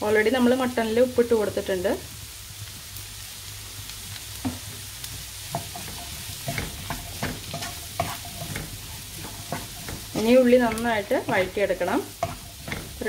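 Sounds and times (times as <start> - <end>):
shallots sizzling in hot oil: 0.0 - 13.0
wooden spoon scraping a pan: 4.4 - 13.0.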